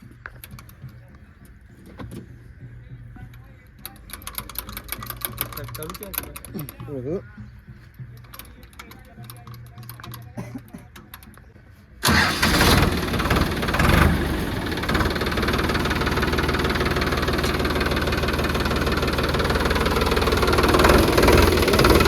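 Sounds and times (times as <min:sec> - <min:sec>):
tractor diesel engine starting: 0:12.0 - 0:22.0.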